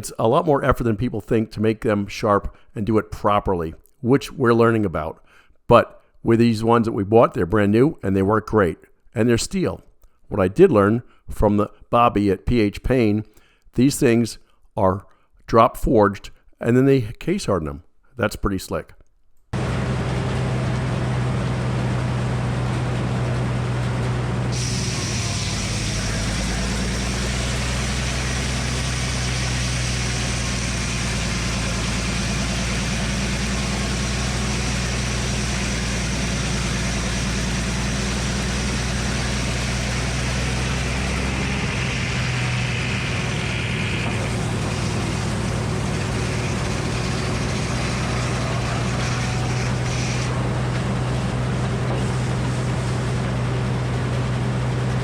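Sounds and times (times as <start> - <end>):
circular sawmill running: 19.6 - 55.0
engine running: 19.6 - 55.0
high whine: 22.9 - 52.2.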